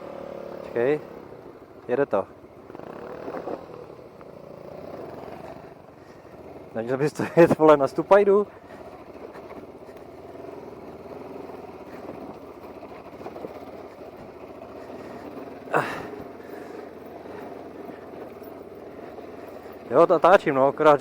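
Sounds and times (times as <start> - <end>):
motorcycle engine at low revs: 0.0 - 21.0.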